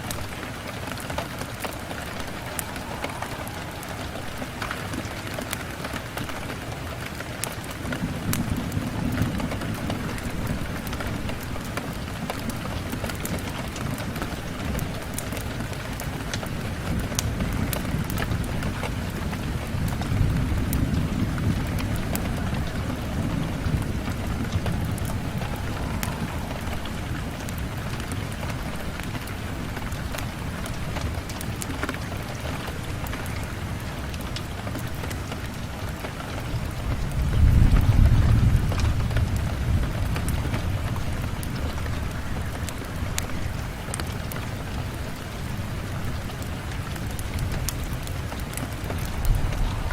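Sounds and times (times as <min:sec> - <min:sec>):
rain on a window: 0:00.0 - 0:49.9
low rumble: 0:01.6 - 0:06.4, 0:19.8 - 0:31.6, 0:48.5 - 0:49.9.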